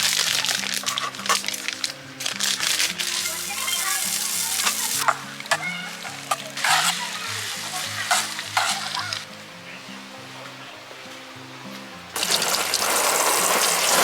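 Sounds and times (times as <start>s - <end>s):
food sizzling in a hot pan: 0.0s - 9.4s, 12.2s - 14.0s
background music: 0.0s - 14.0s
utensil clinking: 12.2s - 14.0s.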